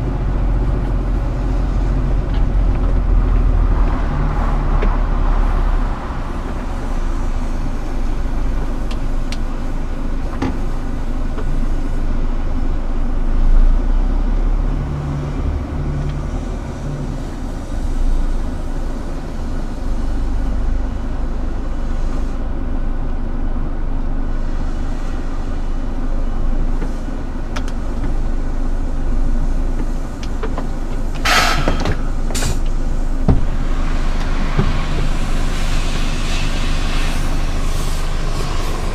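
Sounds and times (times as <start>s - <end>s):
diesel truck engine running: 0.0s - 38.9s
short air hisses: 31.2s - 32.7s, 33.8s - 38.9s.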